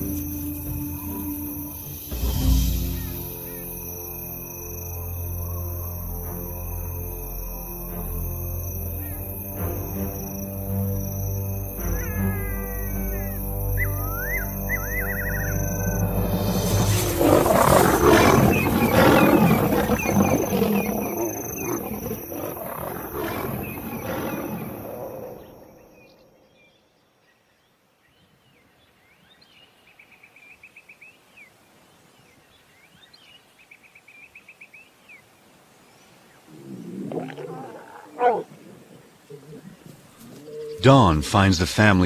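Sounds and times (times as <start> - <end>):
high trilling calls: 7.8 - 26.4
lions roaring: 14.8 - 26.1, 36.5 - 40.9.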